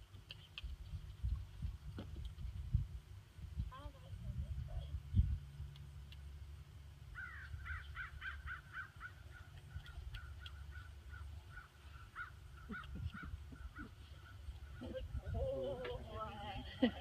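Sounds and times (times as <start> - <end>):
continuous low rumble: 0.0 - 17.0
bird calling: 7.1 - 16.2.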